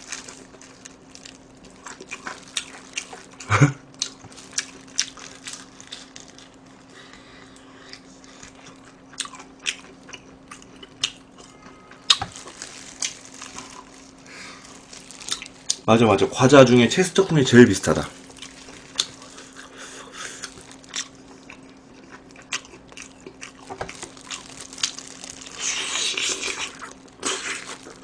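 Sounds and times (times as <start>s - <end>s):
crunching of crispy fried chicken: 0.0s - 28.0s.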